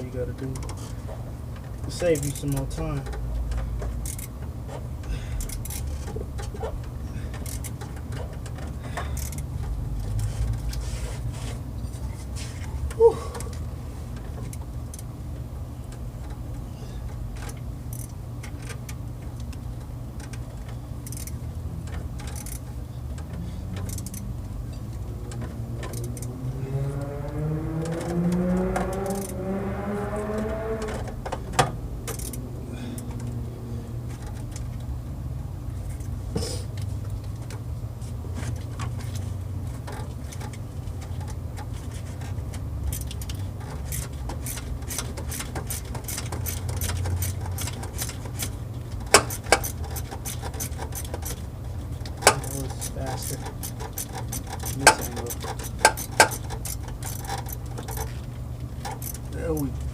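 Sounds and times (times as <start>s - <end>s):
ratchet clicking: 1.9s - 4.4s, 5.0s - 6.6s, 7.3s - 10.7s, 17.0s - 19.5s, 20.2s - 24.3s, 25.3s - 26.4s, 28.9s - 29.4s, 32.0s - 33.4s, 39.8s - 58.2s, 58.8s - 59.6s
low hum: 9.6s - 38.0s
vehicle engine revving: 23.3s - 34.3s.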